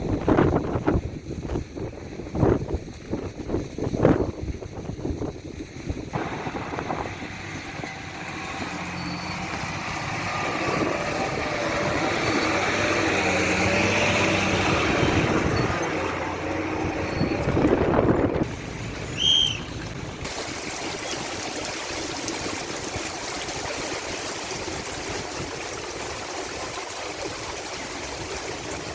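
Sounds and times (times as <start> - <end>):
vehicle passing: 6.2 - 20.3.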